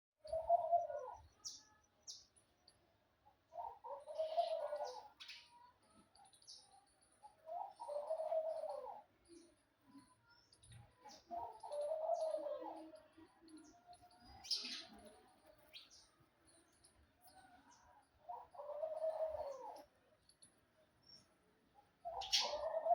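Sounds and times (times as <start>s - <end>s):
bird cooing: 0.2s - 1.6s, 3.5s - 6.5s, 7.2s - 10.1s, 10.7s - 16.0s, 17.3s - 20.0s, 21.1s - 22.9s
small birds chirping: 0.2s - 22.9s.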